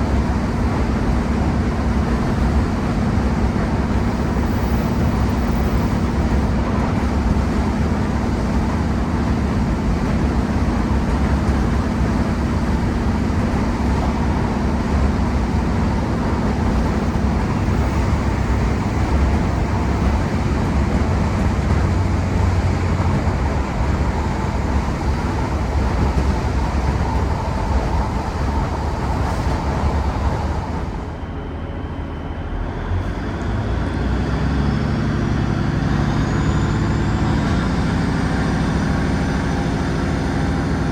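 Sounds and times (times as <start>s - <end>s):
diesel train engine working hard: 0.0s - 40.9s
train wheels running on rails: 0.0s - 40.9s.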